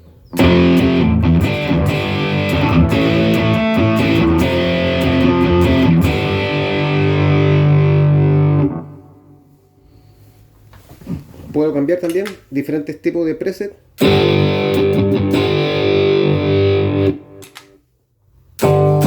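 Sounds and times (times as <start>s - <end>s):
crunchy electric guitar: 0.3s - 9.4s, 14.0s - 17.8s, 18.6s - 19.0s.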